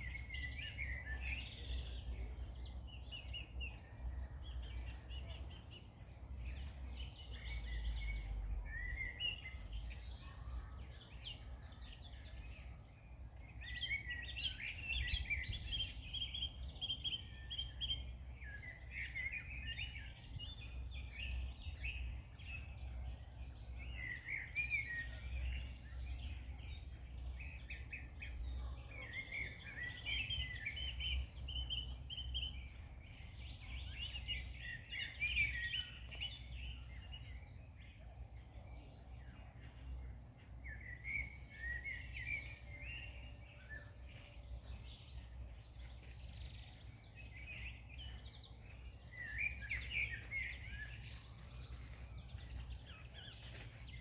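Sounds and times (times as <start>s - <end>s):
songbirds singing and chirping: 0.0s - 54.0s.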